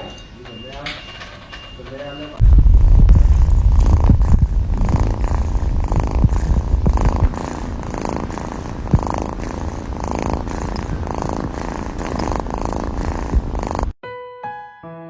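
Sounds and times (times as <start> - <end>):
cat purring loudly: 2.4 - 14.0
soft piano music: 14.0 - 15.0.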